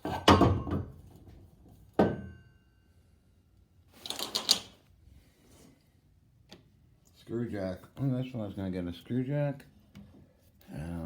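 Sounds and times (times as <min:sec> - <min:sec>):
metallic clank with ringing: 0:02.0 - 0:02.8.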